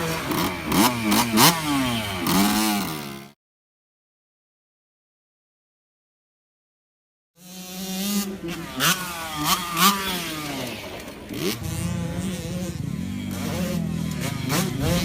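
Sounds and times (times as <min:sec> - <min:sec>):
dirt bike engine revving: 0:00.0 - 0:03.4, 0:07.4 - 0:15.0.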